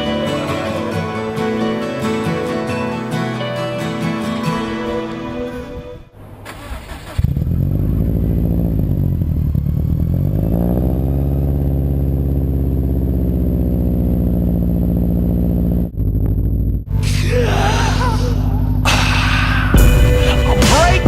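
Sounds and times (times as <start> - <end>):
car engine cranking and idling: 6.1 - 17.2.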